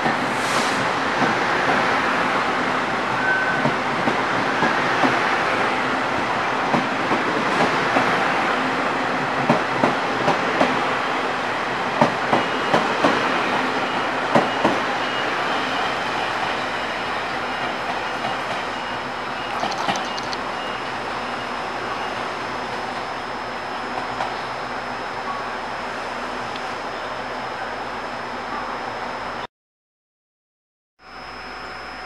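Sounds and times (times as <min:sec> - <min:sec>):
train wheels rumbling on rail: 0:00.0 - 0:20.5
clickety-clack over rail joints: 0:06.7 - 0:08.1.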